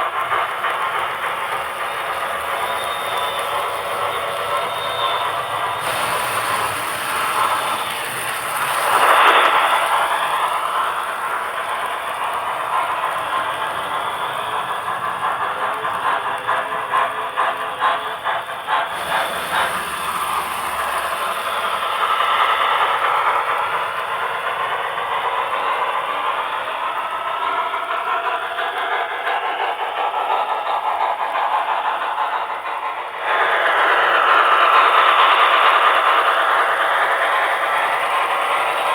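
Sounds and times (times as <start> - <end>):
model train rolling rattle: 0.0 - 38.9
wheels clicking over rail joints: 0.0 - 38.9.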